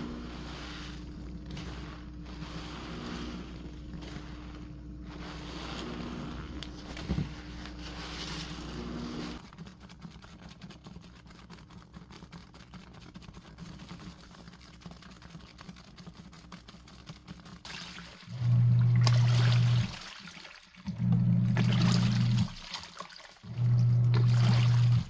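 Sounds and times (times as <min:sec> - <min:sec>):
washing machine humming: 0:00.0 - 0:09.6, 0:17.6 - 0:25.0.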